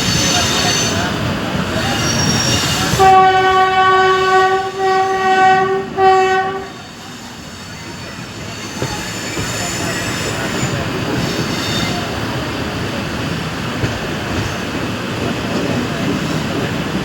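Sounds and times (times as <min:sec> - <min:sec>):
moving train rumble: 0:00.0 - 0:17.0
train horn blasts: 0:02.9 - 0:07.1.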